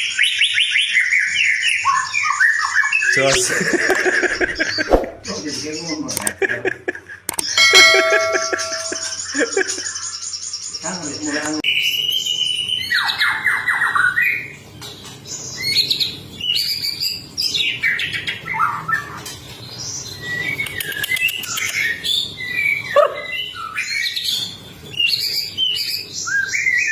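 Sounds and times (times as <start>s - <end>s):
bird singing varied song: 0.0s - 3.5s, 7.4s - 26.9s.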